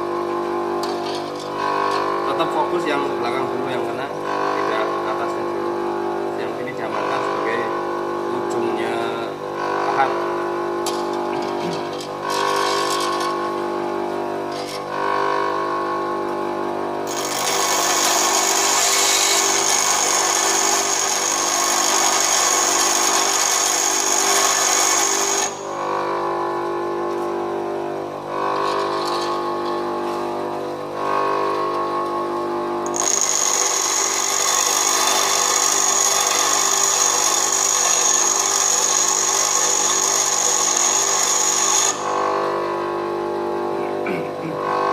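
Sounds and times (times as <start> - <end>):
grinder motor humming: 0.0 - 44.9
tool bit grinding on wheel: 0.8 - 2.5, 10.8 - 13.6, 14.5 - 14.9, 17.1 - 25.8, 28.4 - 29.9, 32.8 - 42.5.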